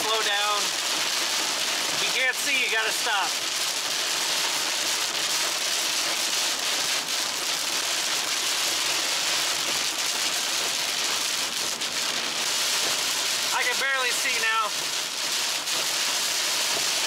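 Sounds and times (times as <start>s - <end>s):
heavy rain on car roof: 0.0s - 17.0s
person talking: 2.0s - 3.3s, 13.5s - 14.7s.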